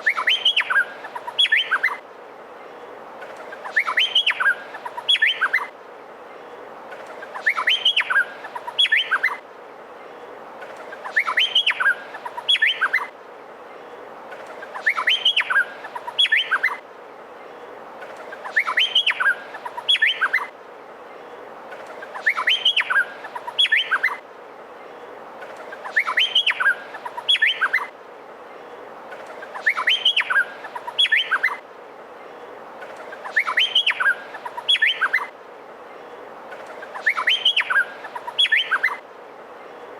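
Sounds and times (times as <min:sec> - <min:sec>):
bird singing whistled notes: 0:00.0 - 0:02.0, 0:03.6 - 0:05.7, 0:07.4 - 0:09.4, 0:11.0 - 0:13.1, 0:14.8 - 0:16.8, 0:18.4 - 0:20.5, 0:22.2 - 0:24.2, 0:25.8 - 0:27.9, 0:29.5 - 0:31.6, 0:33.2 - 0:35.3, 0:36.9 - 0:39.0
steady background hiss: 0:00.0 - 0:39.9.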